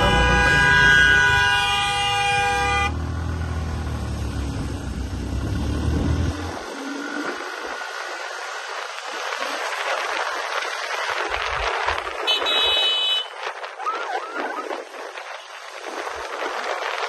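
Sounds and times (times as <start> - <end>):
vehicle horn blaring: 0.0 - 3.1, 12.2 - 13.4
road and wind noise: 0.0 - 17.0.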